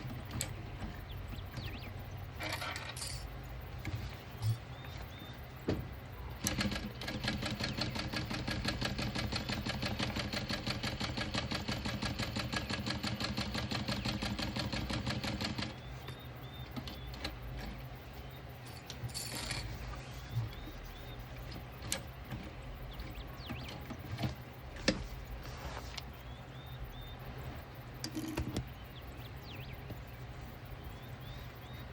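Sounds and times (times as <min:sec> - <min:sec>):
short rustle: 0:24.7 - 0:26.3.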